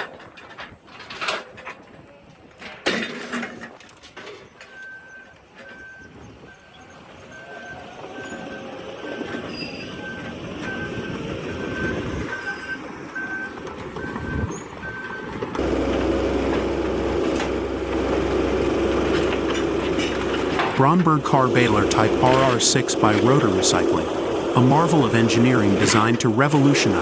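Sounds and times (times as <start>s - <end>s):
reversing alarm beeping: 4.6s - 27.0s
rumbling machinery: 7.6s - 27.0s
heavy diesel engine drone: 14.0s - 27.0s.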